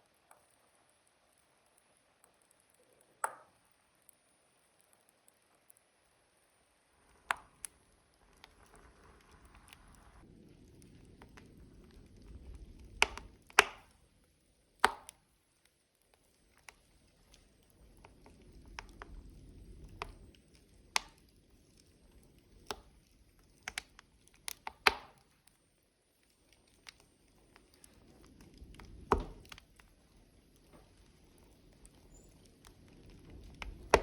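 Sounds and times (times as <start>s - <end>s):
wood fire crackling and popping: 0.0s - 34.0s
low rumble of flames: 4.4s - 34.0s.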